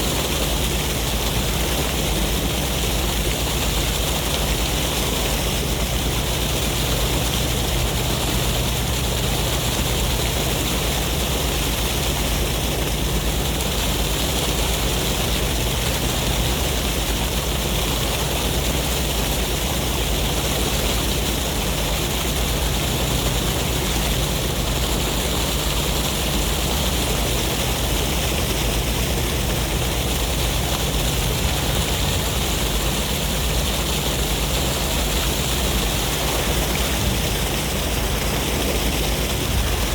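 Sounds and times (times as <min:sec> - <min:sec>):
wind: 0:00.0 - 0:39.9
sea waves: 0:19.6 - 0:39.9.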